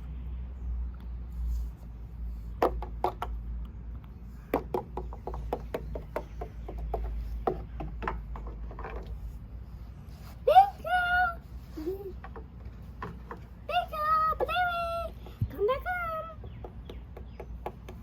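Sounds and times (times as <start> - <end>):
toys clicking and knocking: 4.5 - 9.3, 12.0 - 18.0.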